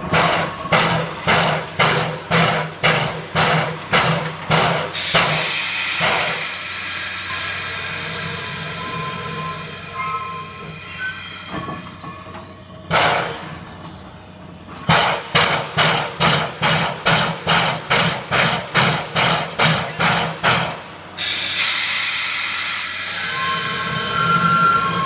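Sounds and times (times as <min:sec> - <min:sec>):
steam locomotive chuffing: 0:00.0 - 0:25.0
steam hissing: 0:00.1 - 0:11.8, 0:12.9 - 0:13.6, 0:14.9 - 0:25.0.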